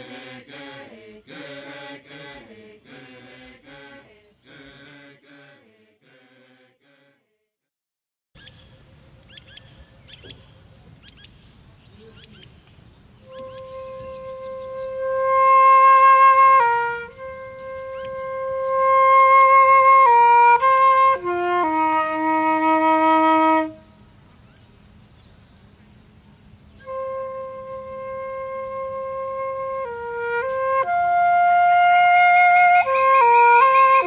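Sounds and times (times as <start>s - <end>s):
solo flute melody: 13.2s - 24.0s, 26.8s - 34.0s.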